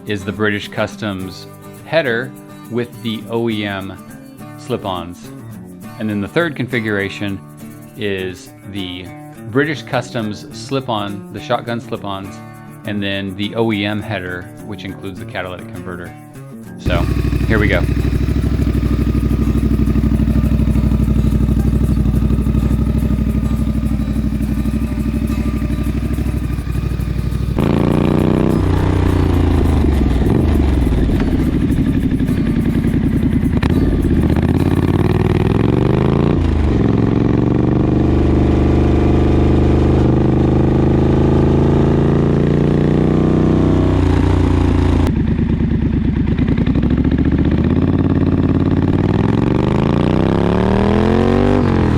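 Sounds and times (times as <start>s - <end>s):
motorcycle engine idling and revving: 16.8s - 51.9s.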